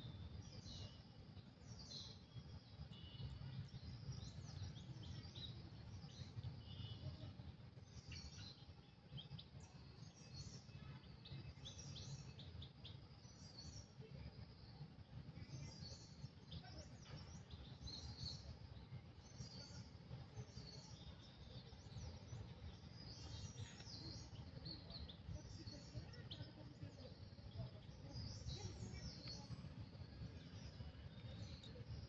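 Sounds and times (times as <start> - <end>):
faint bird chirps: 0.0 - 32.0.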